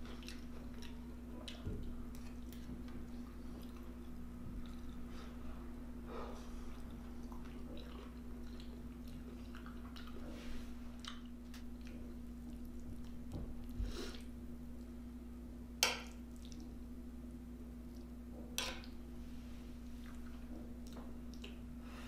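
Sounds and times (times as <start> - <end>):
person chewing food: 0.0 - 5.6, 6.2 - 14.9, 19.9 - 21.7
steady low hum: 0.0 - 22.0.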